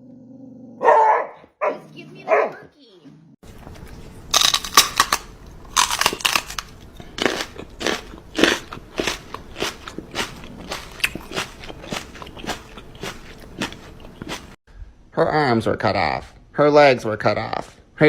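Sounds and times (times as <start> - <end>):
crunching: 3.4 - 14.6.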